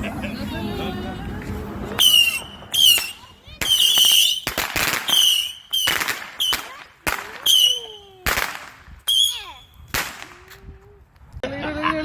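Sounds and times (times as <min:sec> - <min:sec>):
high shriek: 0:02.0 - 0:06.8, 0:09.1 - 0:09.8
firecracker bangs: 0:02.0 - 0:10.4.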